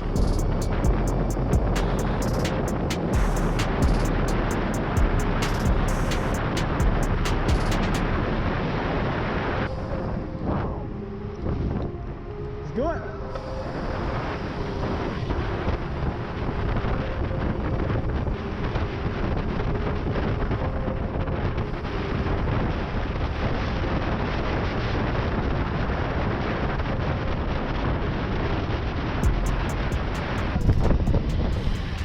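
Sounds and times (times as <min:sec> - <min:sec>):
wind rushing over microphone: 0:00.0 - 0:32.0.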